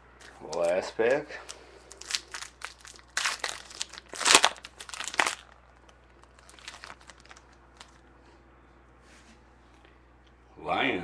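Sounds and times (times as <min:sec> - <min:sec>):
wrapper tearing and crinkling: 0:00.2 - 0:08.0.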